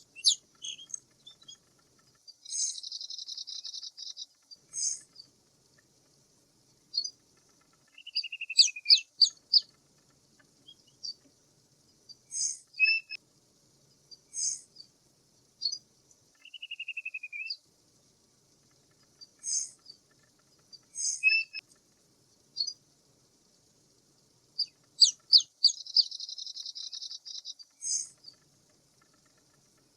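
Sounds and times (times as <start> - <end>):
bird chirps: 0.0 - 5.3, 6.9 - 11.3, 12.0 - 13.2, 14.0 - 14.9, 15.6 - 17.6, 18.6 - 21.8, 22.5 - 22.8, 24.5 - 29.9
hissy high bird calls: 0.0 - 5.3, 6.9 - 9.8, 12.0 - 13.2, 14.1 - 14.9, 15.6 - 17.6, 18.6 - 21.8, 22.5 - 22.8, 24.5 - 29.9.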